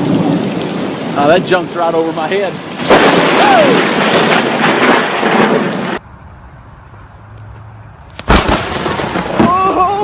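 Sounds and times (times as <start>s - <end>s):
heavy rain: 0.0s - 6.0s, 8.3s - 10.0s
lightning strike crack: 0.0s - 6.0s, 8.2s - 10.0s
rolling thunder: 0.0s - 6.0s, 8.3s - 10.0s.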